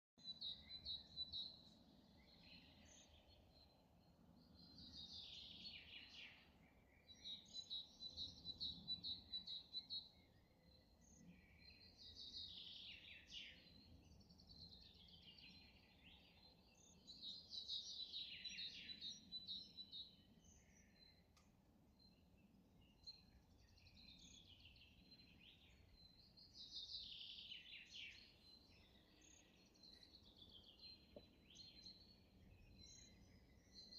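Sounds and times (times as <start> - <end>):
songbirds singing: 0.2 - 33.9.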